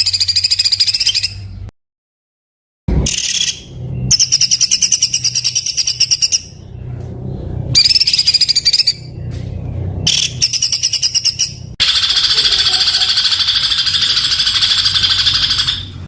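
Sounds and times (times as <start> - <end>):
songbird singing rapid harsh trills: 0.0 - 1.6, 3.1 - 6.8, 7.8 - 16.0.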